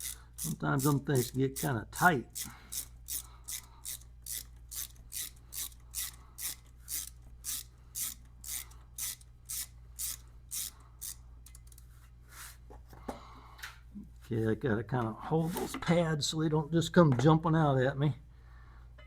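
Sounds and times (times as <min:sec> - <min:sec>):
hand tool rasping strokes: 0:00.0 - 0:01.7.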